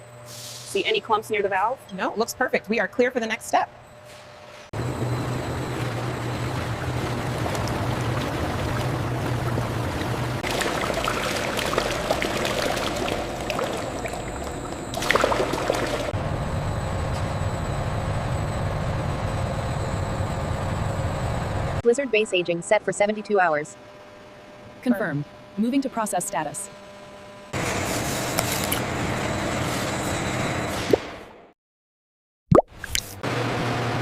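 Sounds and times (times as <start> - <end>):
low machine hum: 0.0 - 29.6
liquid pouring: 6.5 - 16.2.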